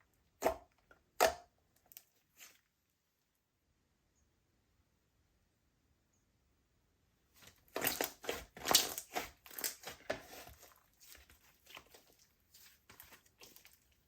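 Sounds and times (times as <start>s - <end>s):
slime squishing and popping: 7.7s - 14.0s.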